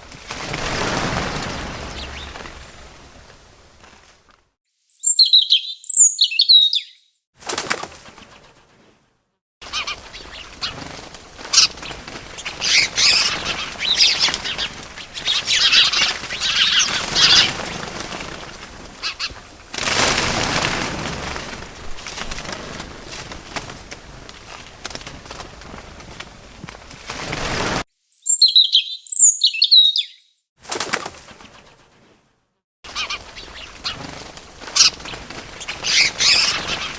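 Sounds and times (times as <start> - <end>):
wings flapping and rustling: 0.0 - 4.6, 7.4 - 27.9, 30.6 - 32.3, 32.9 - 36.9
bird chirping: 1.7 - 2.9, 4.7 - 7.2, 28.0 - 30.4.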